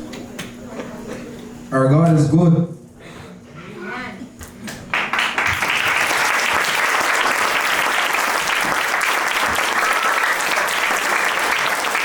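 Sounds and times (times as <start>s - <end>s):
audience applause: 4.9s - 12.0s.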